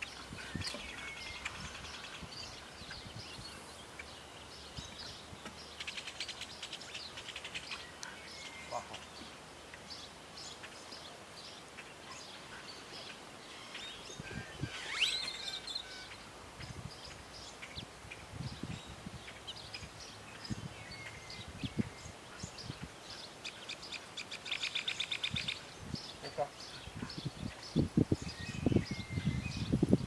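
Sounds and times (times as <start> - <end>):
outdoor background noise: 0.0 - 30.0
small birds chirping: 0.0 - 30.0
gliding bird call: 13.5 - 16.2
rapid bird trill: 14.5 - 16.2.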